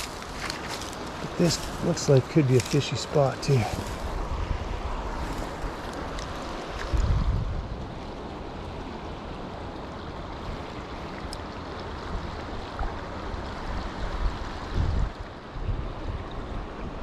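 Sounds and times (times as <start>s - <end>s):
creek water running: 0.0s - 17.0s
wind on microphone: 3.3s - 8.2s, 12.2s - 17.0s.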